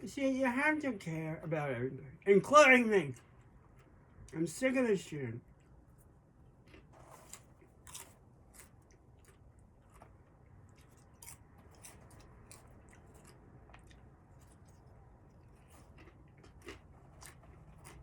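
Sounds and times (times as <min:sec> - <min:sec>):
crunchy chewing: 0:05.4 - 0:18.0.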